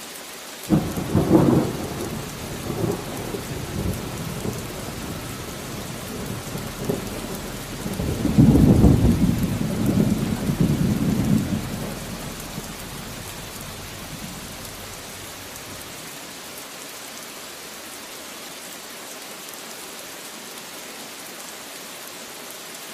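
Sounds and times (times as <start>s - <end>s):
steady rain: 0.0s - 22.9s
thunder rumble: 0.7s - 16.1s.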